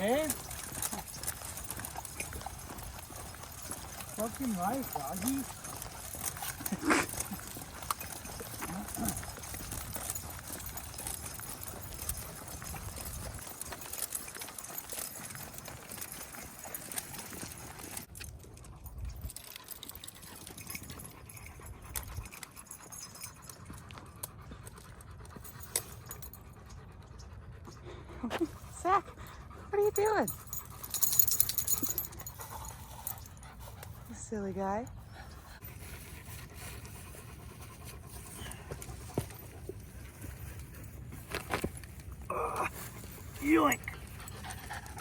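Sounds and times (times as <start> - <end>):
footsteps of walker and dogs: 0.0 - 45.0.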